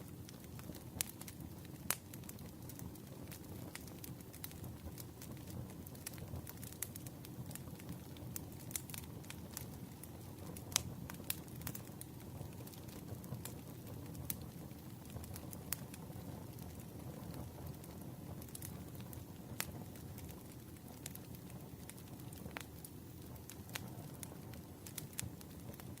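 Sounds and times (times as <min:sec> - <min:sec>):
burning wood crackling and snapping: 0:00.0 - 0:26.0
low rumble of flames: 0:00.0 - 0:26.0.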